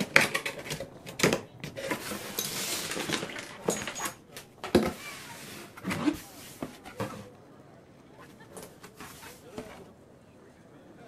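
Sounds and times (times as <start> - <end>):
plastic toy pieces clattering: 0.0 - 5.0
rustling: 0.0 - 7.4, 8.2 - 10.0.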